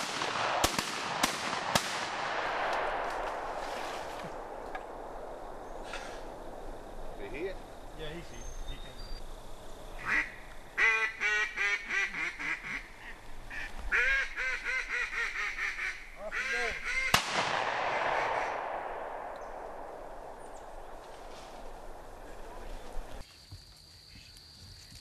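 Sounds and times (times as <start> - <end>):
shotgun shot: 0.0 - 3.6, 17.1 - 19.9
duck quacking: 10.0 - 17.1.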